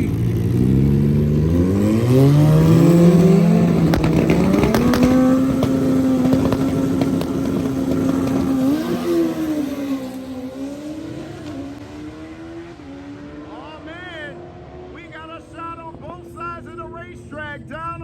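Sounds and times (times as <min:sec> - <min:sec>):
drag racing motorcycles accelerating: 0:00.0 - 0:17.7
engine pops: 0:03.7 - 0:09.1.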